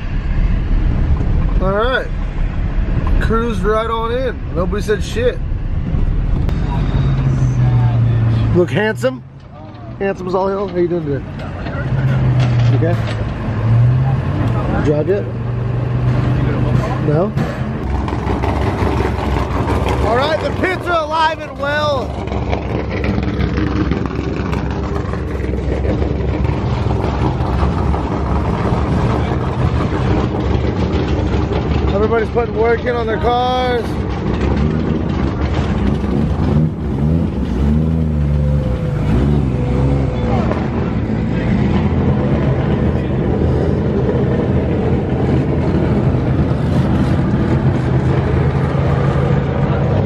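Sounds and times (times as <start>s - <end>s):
vehicle engine running at low revs: 0.0s - 50.0s.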